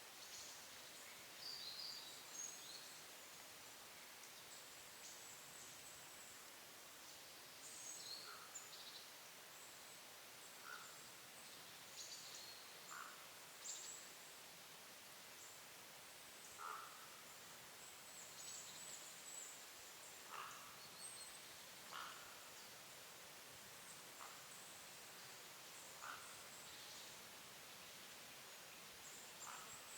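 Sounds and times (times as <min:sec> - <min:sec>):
forest hiss: 0:00.0 - 0:29.9.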